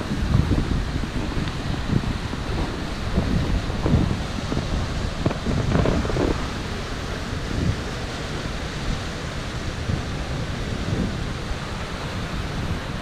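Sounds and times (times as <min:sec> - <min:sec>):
steady outdoor hiss: 0:00.0 - 0:13.0
wind buffeting microphone: 0:00.0 - 0:13.0.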